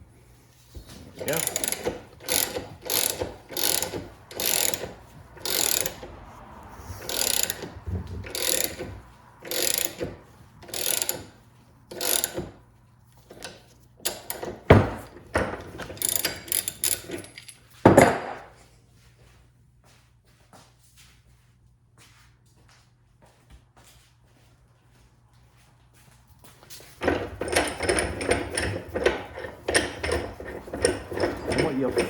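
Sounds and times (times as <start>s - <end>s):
ratchet wrench clicking: 1.3s - 6.1s, 7.0s - 12.6s, 13.3s - 15.1s, 15.7s - 17.6s
sharp metal clicks: 1.3s - 6.1s, 7.0s - 11.3s, 15.7s - 17.6s.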